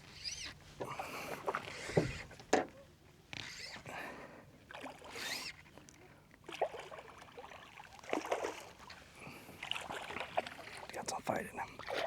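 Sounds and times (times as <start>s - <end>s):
fly line rasping through rod guides: 5.2s - 5.5s.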